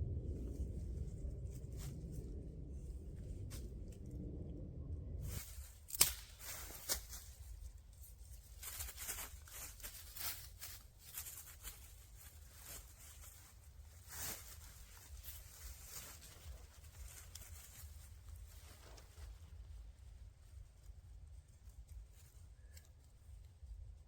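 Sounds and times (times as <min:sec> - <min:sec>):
low rumble: 0:00.0 - 0:22.5
camping gear rustling and crinkling: 0:05.2 - 0:24.0.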